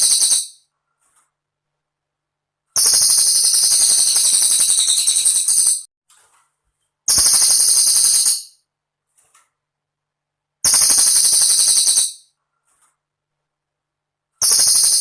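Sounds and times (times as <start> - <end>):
high-pitched bird trills: 2.8 - 5.8, 10.7 - 12.3.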